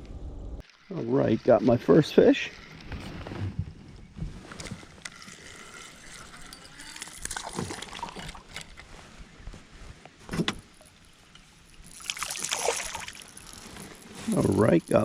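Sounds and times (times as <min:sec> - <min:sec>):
fishing tackle rattling: 0:04.6 - 0:08.9
fishing reel clicking: 0:04.7 - 0:07.5
fish splashing: 0:11.8 - 0:14.0.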